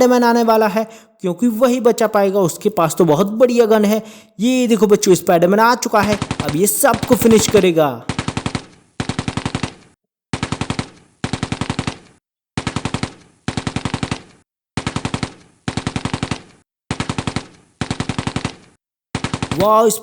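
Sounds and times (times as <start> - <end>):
machine-gun bursts: 6.0 - 9.7.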